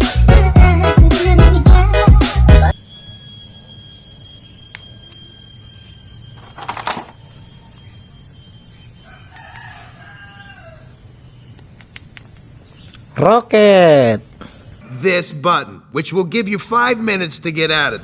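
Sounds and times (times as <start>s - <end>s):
steady high whine: 2.7s - 14.8s.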